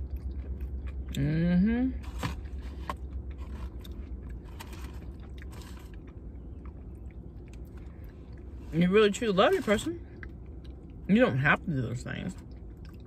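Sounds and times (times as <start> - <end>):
chewing and mouth noises: 0.0 - 1.3, 2.3 - 8.6, 10.0 - 11.1, 12.2 - 13.0
steady low hum: 0.0 - 13.0.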